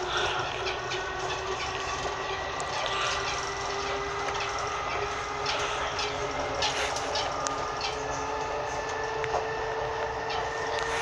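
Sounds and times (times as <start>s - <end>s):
train running rumble: 0.0s - 11.0s.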